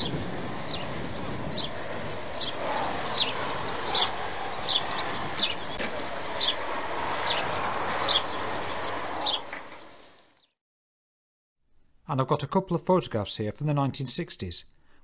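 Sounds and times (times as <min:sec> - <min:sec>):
rushing outdoor background noise: 0:00.0 - 0:10.4
bird high chirps: 0:03.2 - 0:08.4.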